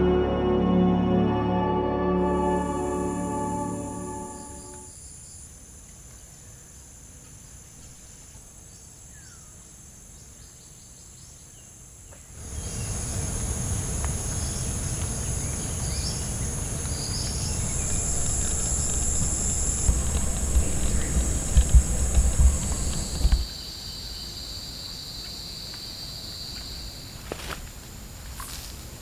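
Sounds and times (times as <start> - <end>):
insects droning: 2.2 - 29.0
low rushing noise: 16.4 - 23.5.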